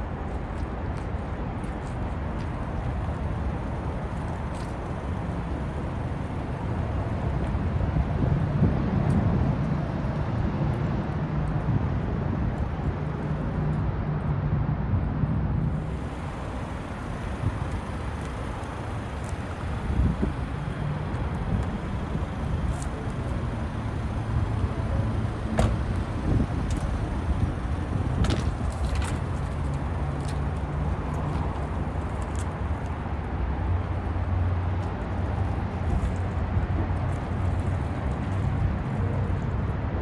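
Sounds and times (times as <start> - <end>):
car engine idling: 2.6 - 8.3, 15.7 - 32.8.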